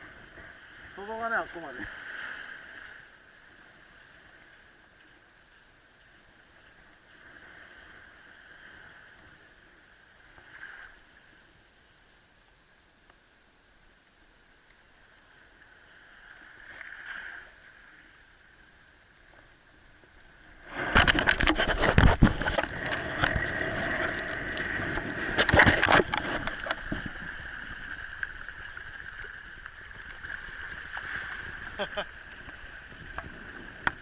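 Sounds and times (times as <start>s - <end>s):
water splashing and churning: 0.0s - 8.9s, 19.7s - 34.0s.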